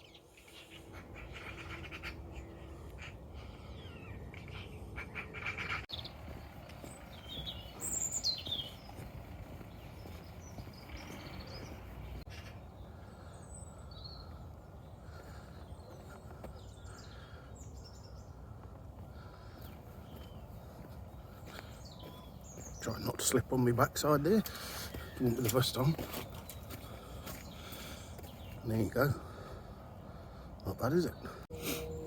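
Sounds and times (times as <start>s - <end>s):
high falling bird calls: 0.0s - 32.0s
small birds chirping: 0.0s - 32.0s
low outdoor rumble: 0.8s - 22.8s.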